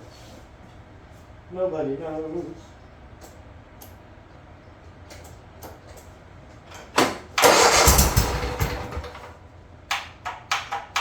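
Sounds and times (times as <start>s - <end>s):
mower engine cranking and firing: 7.1s - 9.4s.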